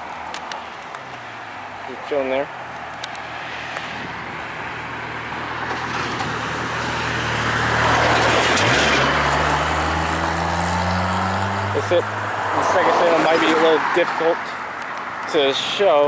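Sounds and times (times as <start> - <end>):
tyre and road noise: 0.0 - 16.0
car engine hum rising: 2.5 - 14.1.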